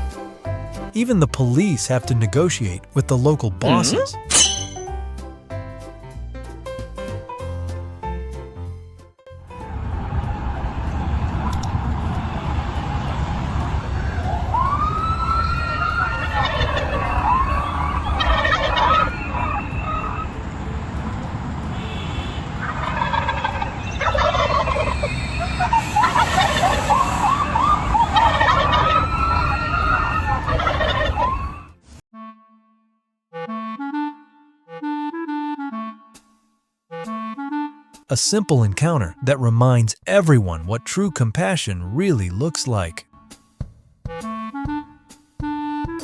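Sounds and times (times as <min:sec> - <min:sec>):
turkeys gobbling: 0:15.8 - 0:20.3, 0:22.6 - 0:31.7.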